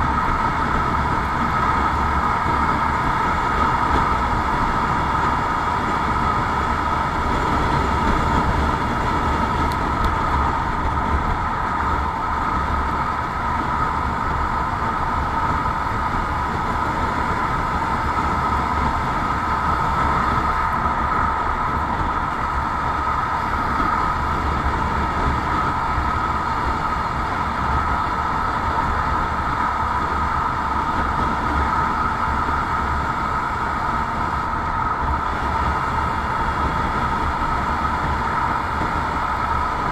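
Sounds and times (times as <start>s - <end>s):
motorcycle engine drone: 0.0s - 39.9s.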